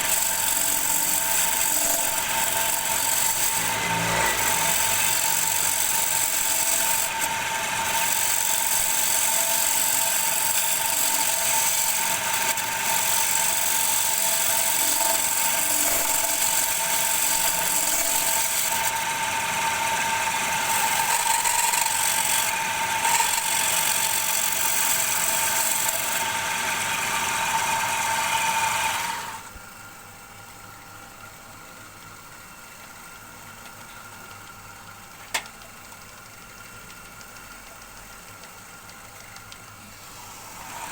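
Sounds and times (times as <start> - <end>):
tool cutting wood hiss: 0.0 - 29.5
wood lathe whining: 0.0 - 29.5, 39.9 - 40.9.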